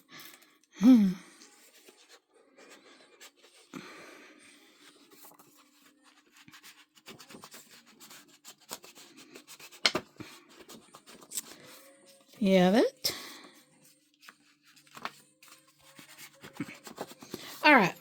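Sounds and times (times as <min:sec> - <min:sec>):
paper rustling and scratching: 0:01.4 - 0:12.4, 0:13.4 - 0:18.0.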